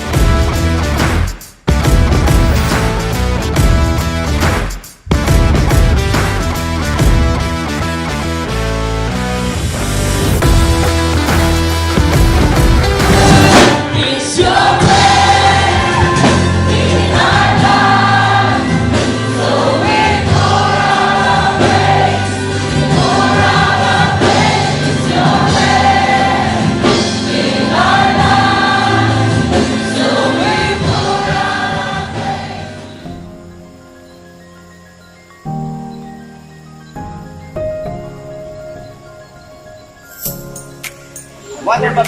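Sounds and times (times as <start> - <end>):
bass and drums: 0.0 - 32.9
gospel choir singing: 12.6 - 33.1.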